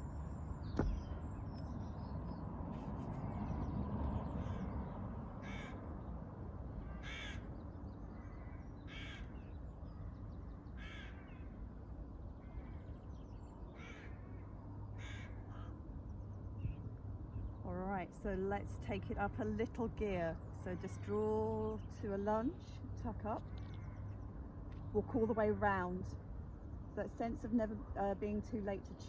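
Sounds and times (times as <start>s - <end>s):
low background rumble: 0.0s - 29.0s
bird harsh calls: 6.8s - 11.6s, 12.4s - 15.8s.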